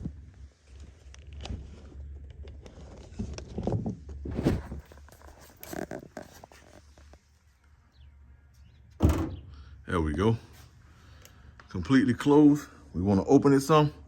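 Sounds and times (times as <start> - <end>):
clicks and rustles of handling gear: 0.6 - 7.3.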